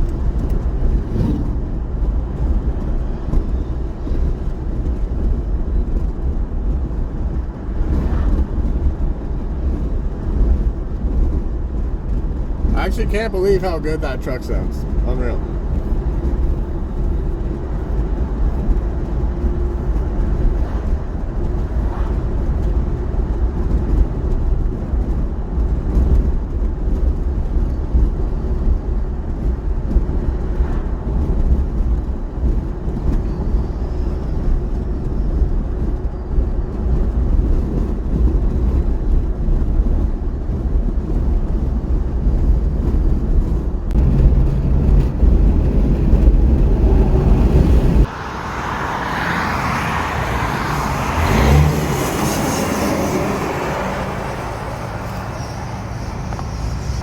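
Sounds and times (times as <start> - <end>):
truck diesel engine droning: 0.0 - 24.1, 42.2 - 57.0
road and wind noise: 0.0 - 57.0.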